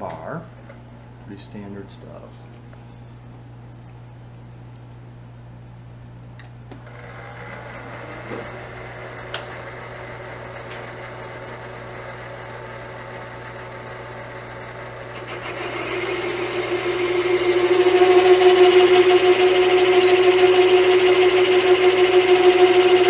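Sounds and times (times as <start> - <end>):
milling machine spindle whining: 6.8 - 23.0.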